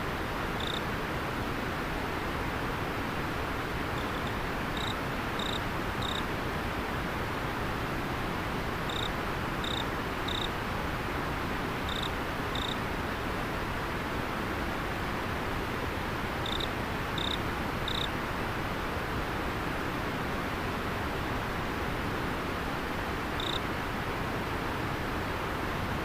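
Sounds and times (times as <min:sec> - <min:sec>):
river water flowing: 0:00.0 - 0:26.0
insect chirping: 0:00.6 - 0:00.8, 0:04.0 - 0:06.2, 0:08.9 - 0:10.5, 0:11.9 - 0:12.8, 0:16.4 - 0:18.1, 0:23.4 - 0:23.6.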